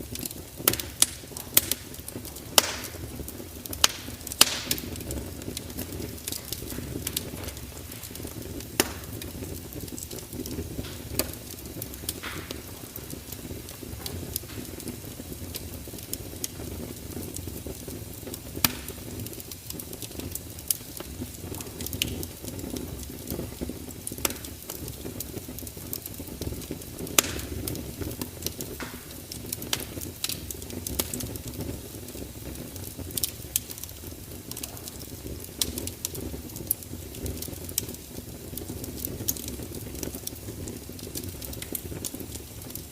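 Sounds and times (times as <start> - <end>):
fire crackles and pops: 0.0 - 42.9
wood fire rumbling and hissing: 0.0 - 42.9.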